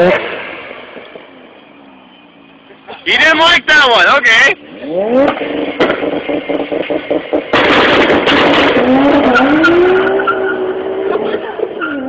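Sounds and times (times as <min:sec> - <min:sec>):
car accelerating away: 0:04.6 - 0:12.0
engine popping on launch control: 0:05.1 - 0:10.0
tyre squeal: 0:09.0 - 0:12.0.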